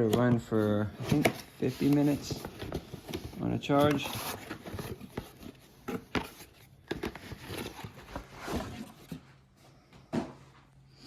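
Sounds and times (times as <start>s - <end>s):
hands rustling packaging: 0.0s - 9.2s.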